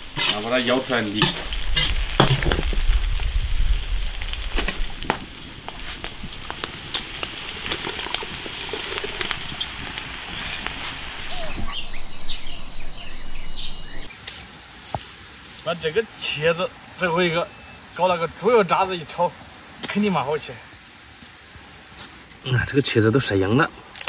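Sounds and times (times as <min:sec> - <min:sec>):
pork cracklings sizzling in lard: 0:00.0 - 0:15.8
fat popping: 0:01.7 - 0:03.3, 0:04.3 - 0:10.9.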